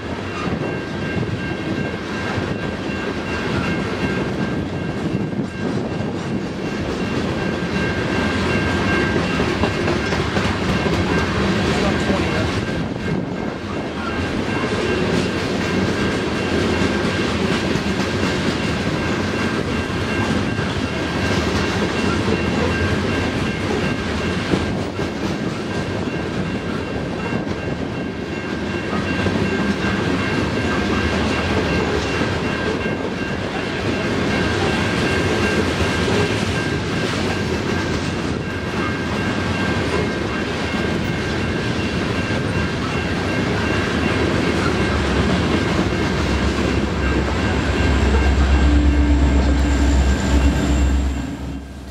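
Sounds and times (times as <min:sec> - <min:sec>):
train wheels clattering on rail: 0:00.0 - 0:51.9
high-pitched ring: 0:38.4 - 0:51.9.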